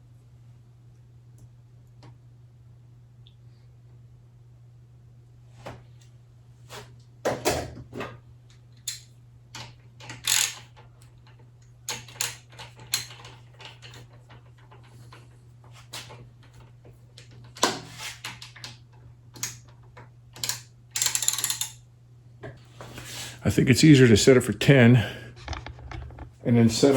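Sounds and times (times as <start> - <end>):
steady low hum: 18.5 - 26.9.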